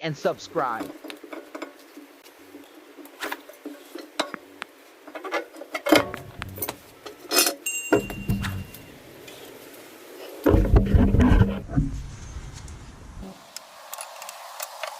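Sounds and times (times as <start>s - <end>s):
metal tools clinking: 0.6s - 9.5s
low rumbling: 10.5s - 13.3s.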